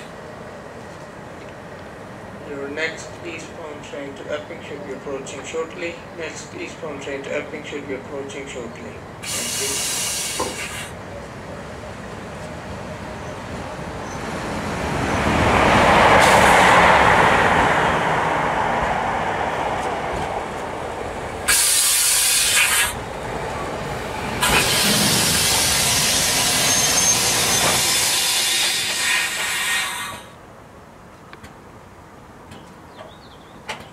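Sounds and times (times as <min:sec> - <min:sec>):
train rumbling past: 0:00.0 - 0:33.9
loud high hissing: 0:09.2 - 0:11.0, 0:21.4 - 0:23.0, 0:24.4 - 0:30.4.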